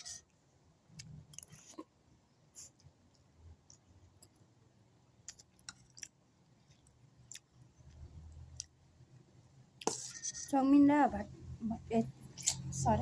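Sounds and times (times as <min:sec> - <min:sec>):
faint chewing: 0:00.9 - 0:04.5, 0:05.2 - 0:08.8, 0:12.3 - 0:12.8.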